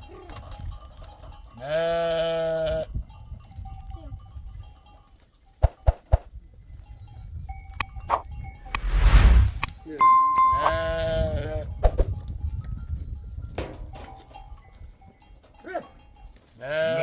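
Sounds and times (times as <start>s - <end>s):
livestock bells ringing: 0.0s - 5.6s, 10.0s - 11.2s, 14.1s - 16.5s
sheep bleating: 1.6s - 2.9s, 16.6s - 17.0s.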